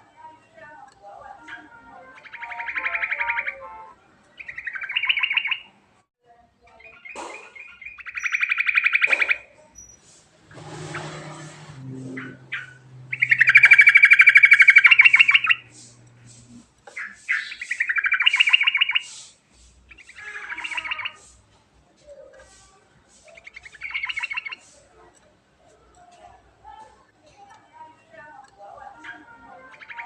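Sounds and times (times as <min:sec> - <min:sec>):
bulbul singing rolling notes: 0:10.4 - 0:19.2.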